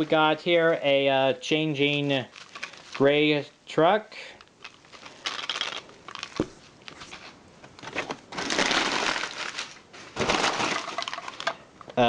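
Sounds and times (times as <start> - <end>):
packing wrap crinkling: 1.8 - 3.4, 4.3 - 11.6.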